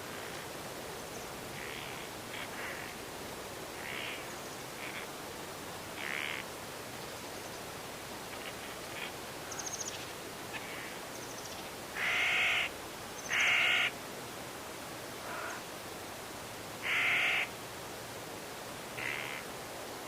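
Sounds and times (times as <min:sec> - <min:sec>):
wind in the trees: 0:00.0 - 0:20.0
crow cawing: 0:03.8 - 0:04.2, 0:06.0 - 0:06.4, 0:12.0 - 0:12.7, 0:13.3 - 0:13.9, 0:15.2 - 0:15.6, 0:16.8 - 0:17.5, 0:19.0 - 0:19.4.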